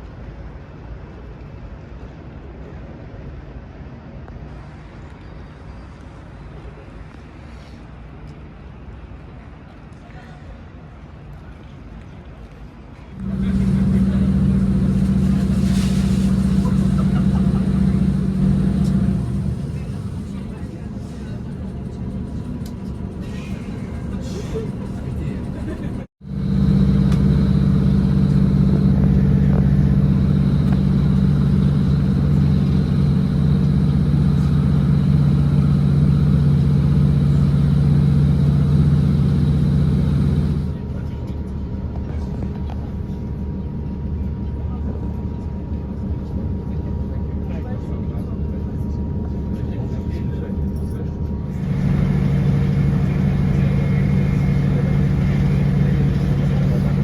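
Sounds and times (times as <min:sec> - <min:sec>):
faint high whine: 0:13.2 - 0:20.0
diesel engine droning: 0:13.2 - 0:45.1, 0:45.9 - 0:57.0.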